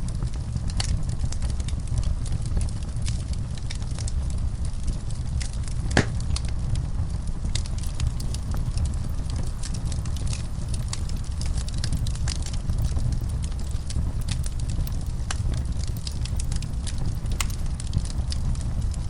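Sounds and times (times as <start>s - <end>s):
fire crackling: 0.0s - 19.0s
fire rumbling: 0.0s - 19.0s
wood pop: 5.9s - 6.2s.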